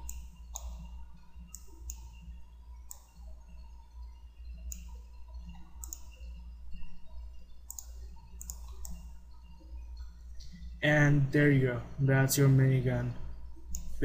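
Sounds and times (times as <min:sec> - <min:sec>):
computer mouse clicking: 0:00.0 - 0:10.7, 0:13.7 - 0:14.0
low electrical hum: 0:00.0 - 0:14.0.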